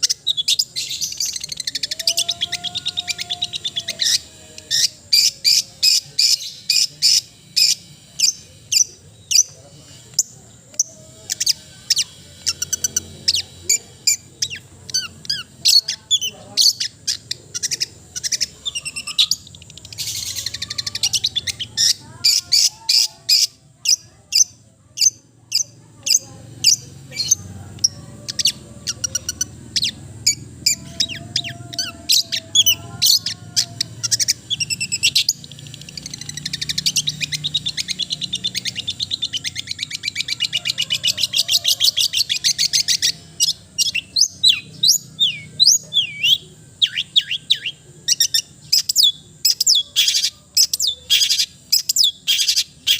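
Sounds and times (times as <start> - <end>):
rapid bird trill: 0.0 - 52.9
bird singing chips and whistles: 41.4 - 52.9.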